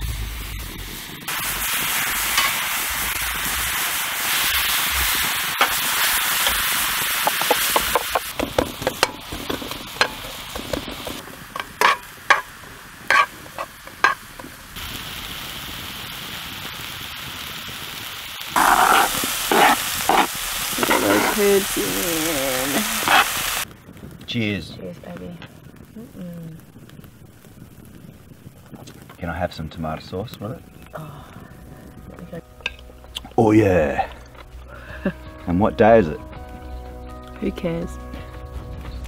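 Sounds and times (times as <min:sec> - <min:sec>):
food sizzling on hotplate: 0:00.0 - 0:36.6
utensil knocking and scraping: 0:07.2 - 0:12.5, 0:13.1 - 0:14.6, 0:18.6 - 0:21.4.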